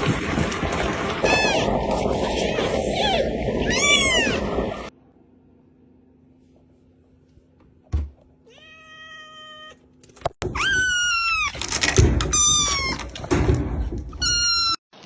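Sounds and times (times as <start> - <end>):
cat meowing: 8.5 - 9.8.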